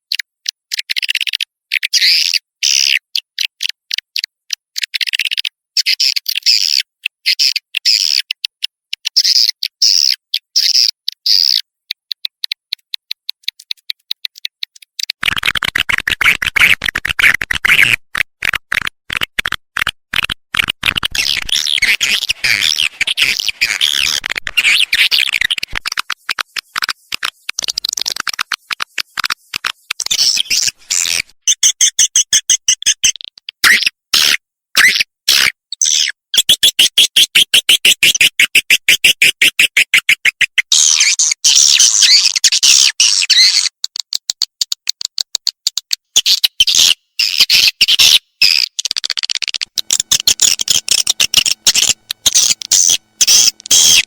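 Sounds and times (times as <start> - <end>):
swiftlet chirps and clicks: 10.7 - 15.2, 21.0 - 33.6, 42.2 - 54.0
quick evenly spaced pulses: 49.8 - 54.0.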